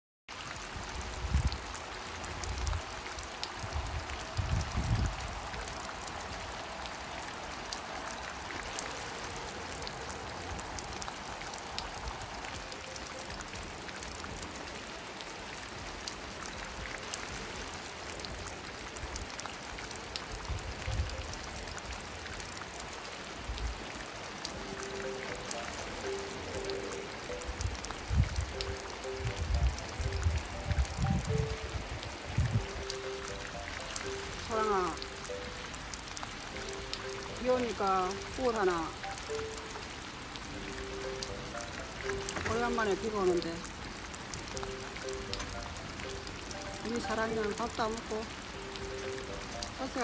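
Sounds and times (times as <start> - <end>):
steady rain falling: 0.3 - 50.0
wind gusting on microphone: 0.5 - 24.8, 25.4 - 40.9.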